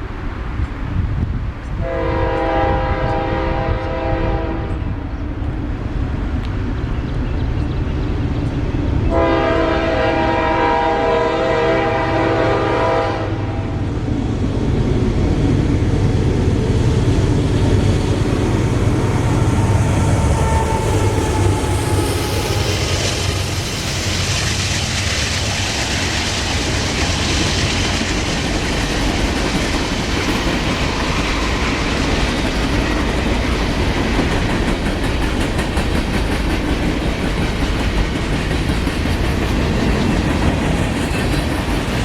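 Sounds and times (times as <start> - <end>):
train rumble: 0.0 - 42.0
locomotive air horn blasts: 1.8 - 5.0, 9.1 - 13.8, 20.4 - 22.5.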